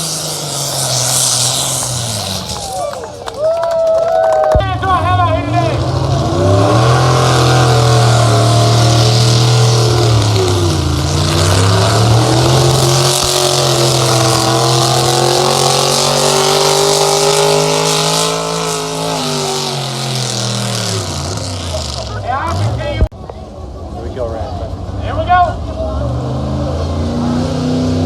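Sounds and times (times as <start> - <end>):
loud vehicle engine running hard: 0.0 - 28.0.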